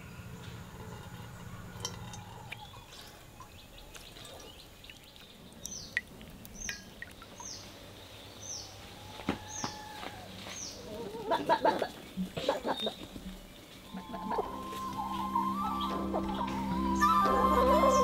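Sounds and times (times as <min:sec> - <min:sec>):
liquid dripping into basin: 0:01.0 - 0:08.0
bird calling with downward notes: 0:13.8 - 0:18.0.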